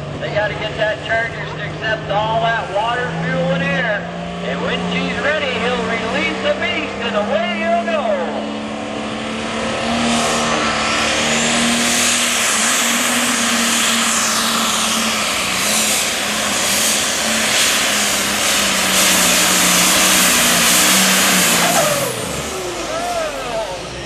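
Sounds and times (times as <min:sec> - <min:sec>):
diesel engine running under load: 0:00.0 - 0:24.0
turbo whistle rising: 0:11.2 - 0:23.6.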